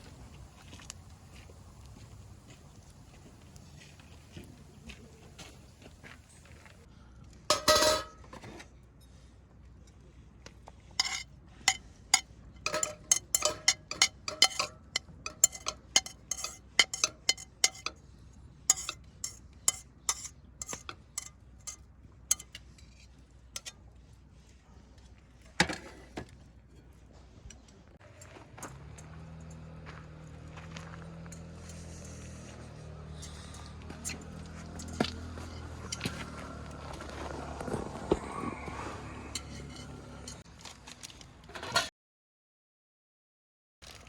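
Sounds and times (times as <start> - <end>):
cookware clinking and clattering: 7.5 - 8.3, 11.0 - 18.0, 18.7 - 21.3, 22.3 - 22.6.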